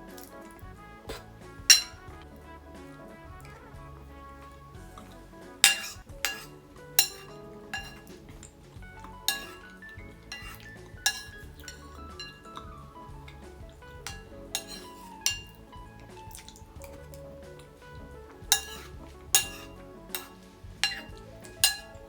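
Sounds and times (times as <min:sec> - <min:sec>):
light background music: 0:00.0 - 0:22.0
cutlery clinking on a plate: 0:01.1 - 0:02.1, 0:05.0 - 0:12.8, 0:14.0 - 0:17.7, 0:18.5 - 0:22.0.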